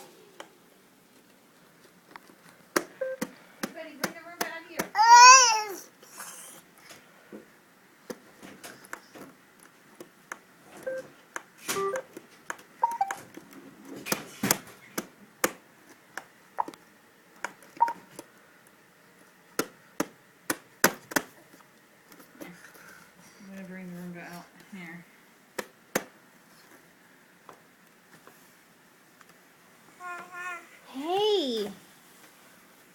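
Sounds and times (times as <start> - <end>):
short beeps: 12.8 - 13.2.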